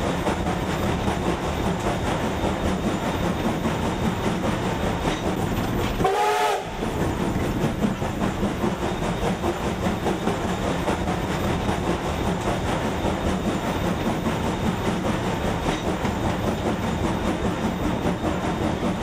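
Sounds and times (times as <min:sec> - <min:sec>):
train running on track: 0:00.0 - 0:19.0
short train whistle: 0:06.0 - 0:06.8.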